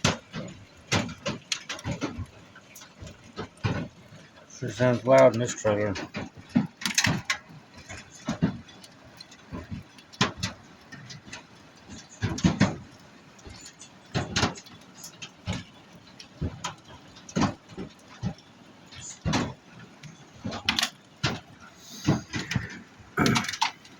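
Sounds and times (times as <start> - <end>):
hailstones knocking on roof: 0.0 - 23.9
rain and hail hiss: 0.0 - 23.9.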